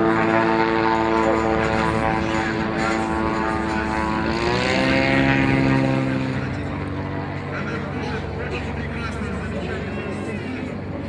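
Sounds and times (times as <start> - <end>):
propeller aircraft engine running: 0.0 - 11.0.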